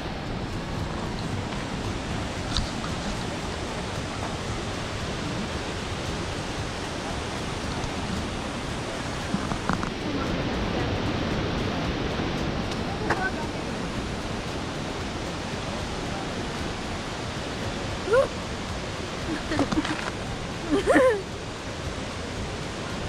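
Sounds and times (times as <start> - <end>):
waterfall and river rushing: 0.0 - 23.0.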